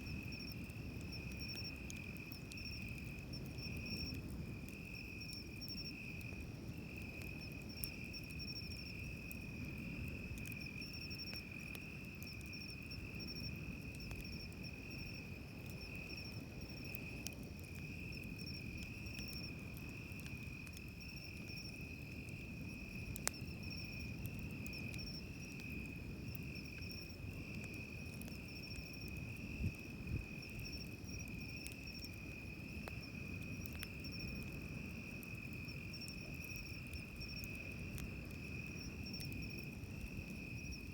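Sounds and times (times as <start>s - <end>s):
campfire crackling pops: 0.0s - 40.9s
insects trilling: 6.9s - 40.9s.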